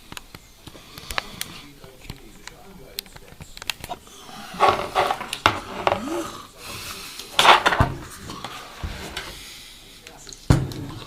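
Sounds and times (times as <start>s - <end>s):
sharp clicks of objects handled: 0.1s - 4.0s
rustling scrapes: 3.9s - 6.4s, 7.2s - 9.4s.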